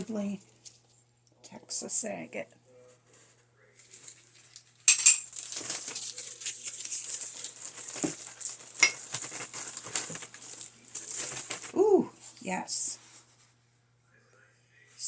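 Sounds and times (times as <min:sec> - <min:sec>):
paper rustling: 0:03.0 - 0:12.4.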